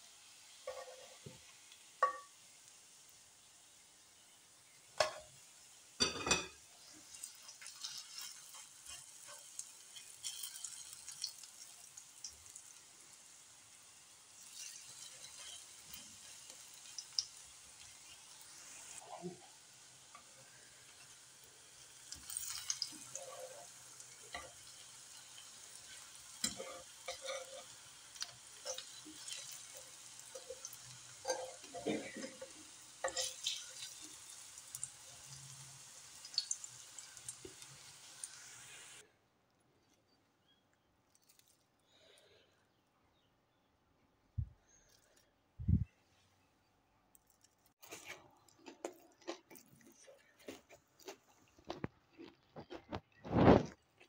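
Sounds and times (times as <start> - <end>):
fritters sizzling in oil: 0.0 - 39.1, 50.2 - 54.0
metal spatula scraping pan: 26.4 - 27.8.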